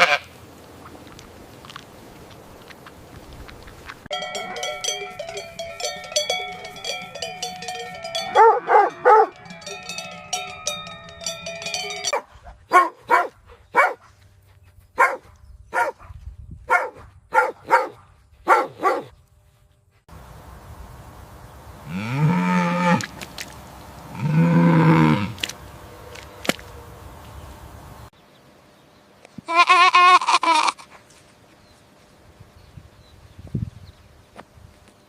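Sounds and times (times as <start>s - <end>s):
dog barking: 8.4s - 9.4s, 12.0s - 14.1s, 15.0s - 19.1s.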